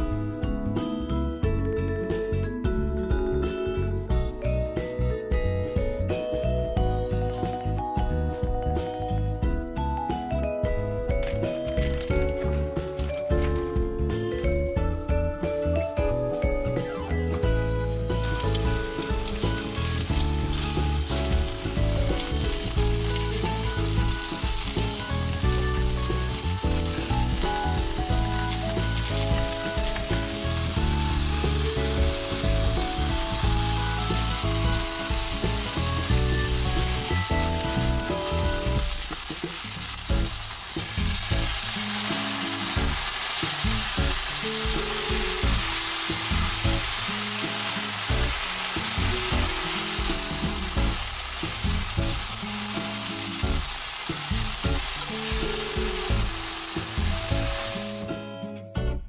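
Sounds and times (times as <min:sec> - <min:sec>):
background music: 0:00.0 - 0:59.0
chicken sizzling in oil: 0:17.3 - 0:58.1.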